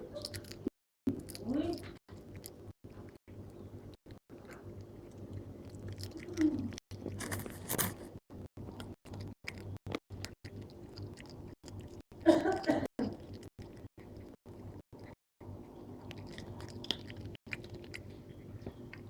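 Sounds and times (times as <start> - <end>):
cat chewing and crunching: 0.0 - 19.0.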